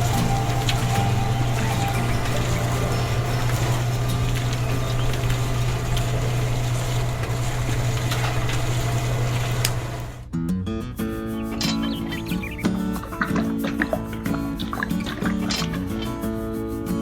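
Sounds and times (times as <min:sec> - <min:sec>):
small motor humming: 0:00.0 - 0:10.2
rattling noise: 0:11.1 - 0:17.0.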